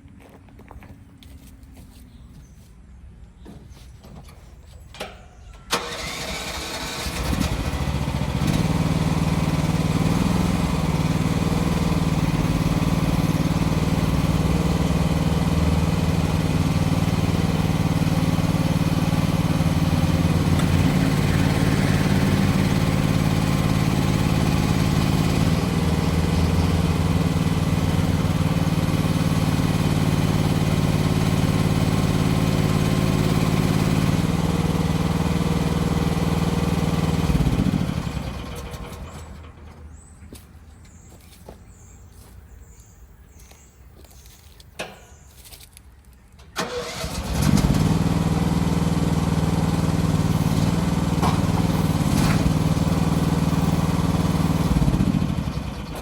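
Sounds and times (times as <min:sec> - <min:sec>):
small gasoline engine running: 0:05.7 - 0:39.8, 0:46.6 - 0:56.0.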